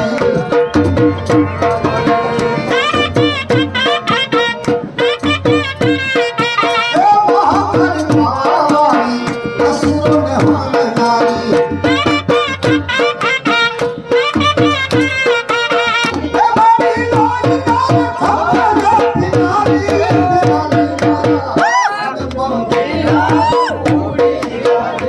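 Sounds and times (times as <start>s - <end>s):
ornamented sliding melody: 0.0s - 5.3s
dhol drum beating: 0.0s - 25.0s.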